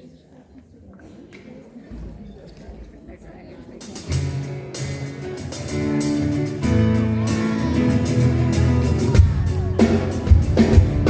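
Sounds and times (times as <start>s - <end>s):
strummed guitar chords: 3.8s - 11.0s
bass line: 5.8s - 11.0s.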